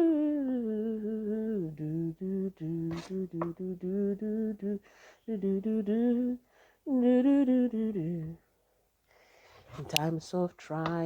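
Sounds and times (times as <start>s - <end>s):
person singing wordless syllables: 0.0s - 8.5s, 9.7s - 11.0s
person breathing: 4.8s - 5.3s, 6.4s - 6.9s, 8.5s - 9.9s.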